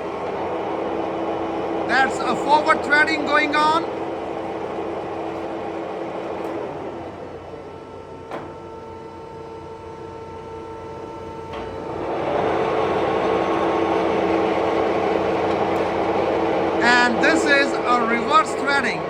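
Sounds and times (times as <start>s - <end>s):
lathe gear whine: 0.0s - 19.0s.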